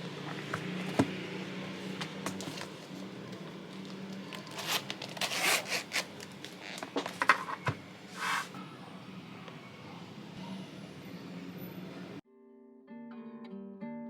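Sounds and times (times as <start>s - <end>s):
rustling and scraping of objects: 0.1s - 8.6s.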